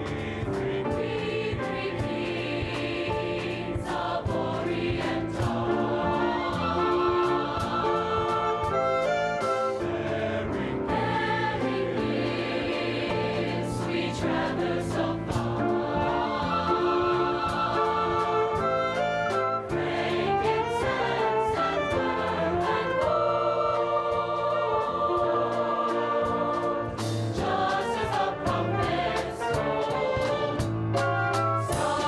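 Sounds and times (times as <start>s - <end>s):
choir singing: 0.0s - 30.9s, 31.6s - 32.0s
instrumental accompaniment: 0.0s - 32.0s.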